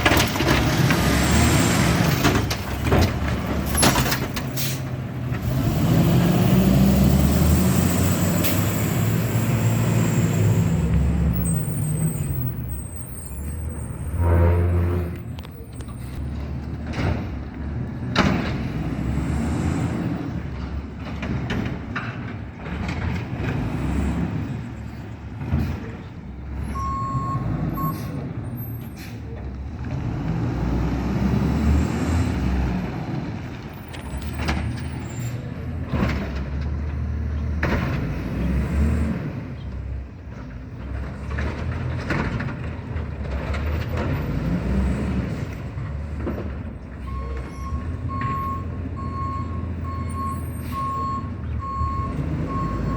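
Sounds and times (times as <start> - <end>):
garbage truck engine revving: 0.0 - 12.8, 29.7 - 52.9
short beep: 26.8 - 28.0.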